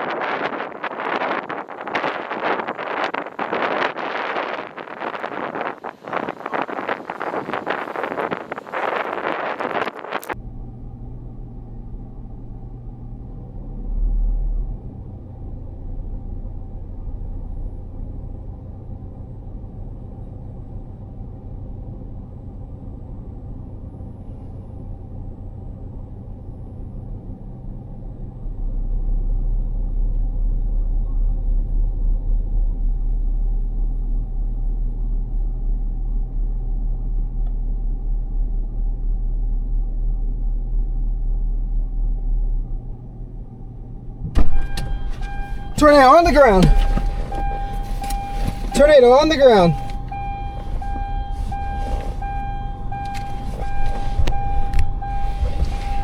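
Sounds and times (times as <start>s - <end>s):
wind buffeting microphone: 0.0s - 10.4s
steady low rumble: 0.0s - 56.0s.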